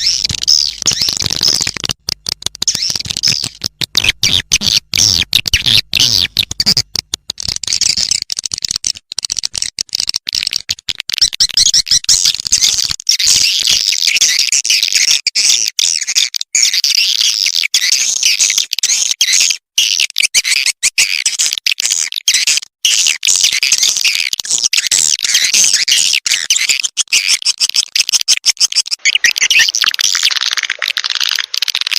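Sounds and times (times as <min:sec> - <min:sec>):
swiftlets chirping: 0:29.0 - 0:31.9.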